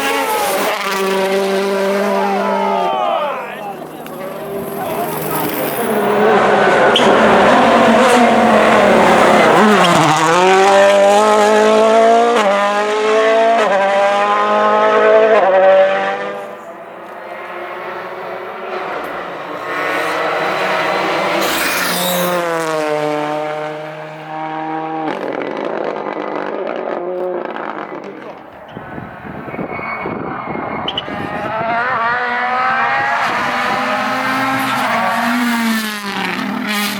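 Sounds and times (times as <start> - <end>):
rally car engine at full throttle: 0.0 - 36.9.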